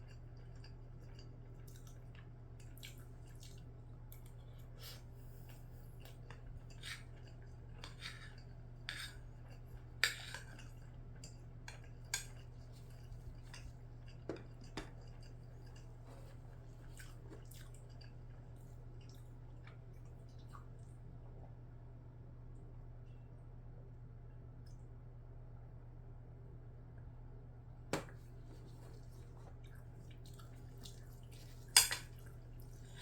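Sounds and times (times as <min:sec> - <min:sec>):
soft chewing: 0:00.0 - 0:21.9, 0:28.0 - 0:33.0
utensils clinking on a dish: 0:31.7 - 0:32.2.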